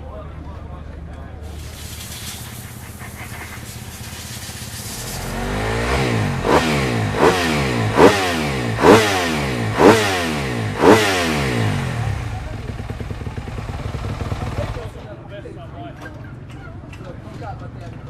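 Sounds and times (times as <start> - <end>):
motocross bike engine revving: 1.5 - 15.0.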